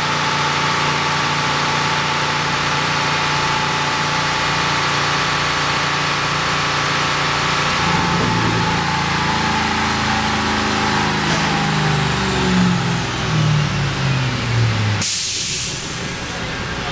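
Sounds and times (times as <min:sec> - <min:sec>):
car engine running under load: 0:00.0 - 0:16.9.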